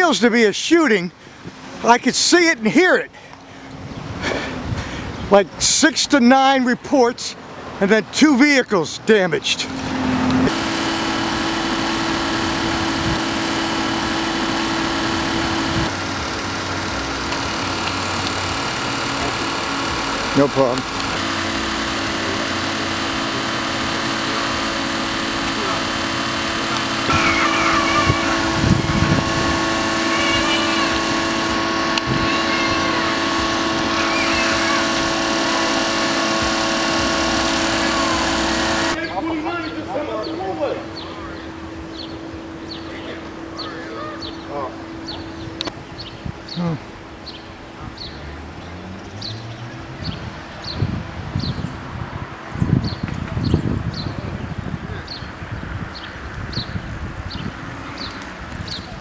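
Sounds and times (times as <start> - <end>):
vehicle engine idling hum: 9.5 - 39.0.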